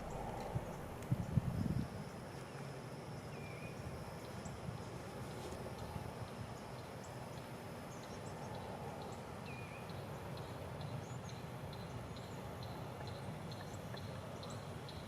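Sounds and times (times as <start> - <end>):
steady low rushing noise: 0.0 - 1.9.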